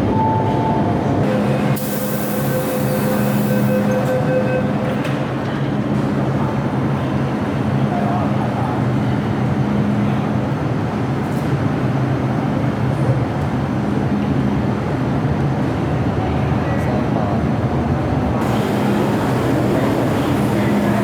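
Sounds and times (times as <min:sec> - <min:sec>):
electric train running: 0:01.2 - 0:05.2, 0:18.4 - 0:21.0.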